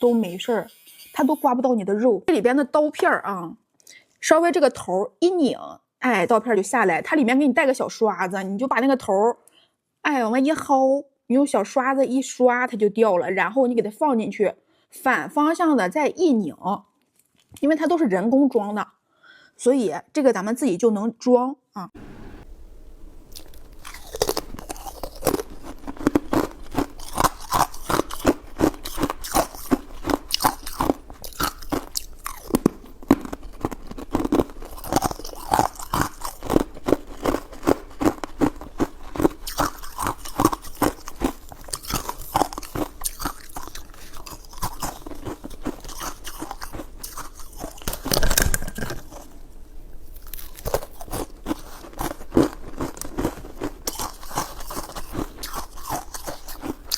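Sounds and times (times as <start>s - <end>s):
crunching and chewing food: 23.3s - 56.9s.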